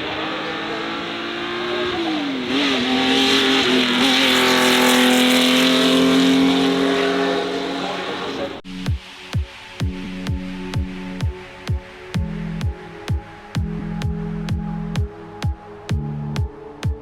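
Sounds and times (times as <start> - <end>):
race car engine at high revs: 0.0 - 9.2.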